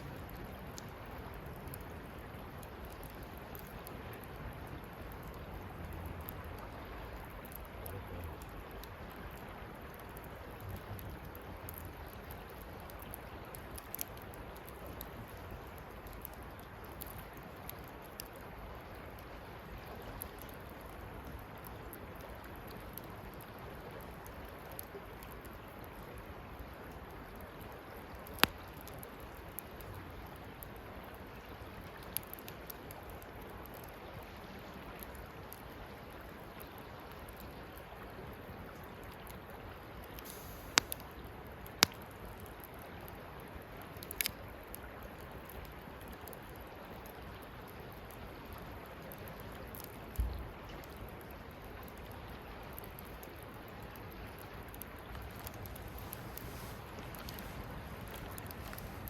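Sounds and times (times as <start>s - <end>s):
campfire hissing: 0.0s - 34.2s, 34.8s - 52.0s, 52.7s - 59.0s
fire crackling pops: 0.0s - 34.2s, 36.6s - 59.0s.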